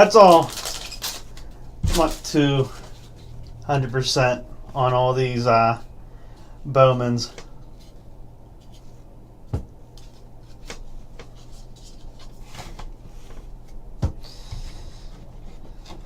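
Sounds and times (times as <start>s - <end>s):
cards being handled: 0.0s - 3.3s
low steady hum: 0.0s - 16.0s.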